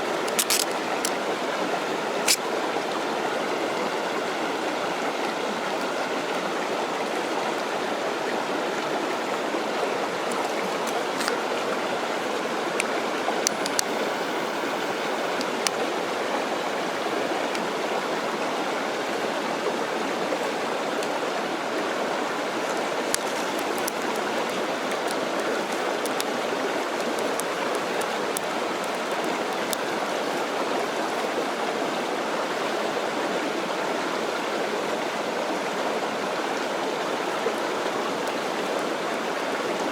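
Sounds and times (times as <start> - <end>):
mountain stream rushing: 0.0 - 39.9
sharp clicks: 0.3 - 1.2, 13.5 - 15.8, 23.2 - 30.0.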